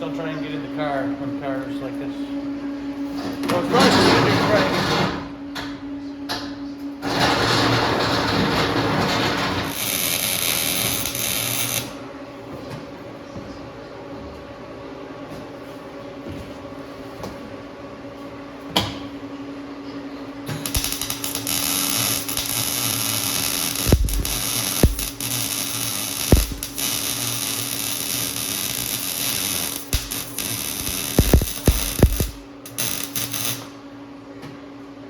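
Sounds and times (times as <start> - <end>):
high-pitched power tool on sheet metal: 7.0 - 12.0, 20.6 - 33.7.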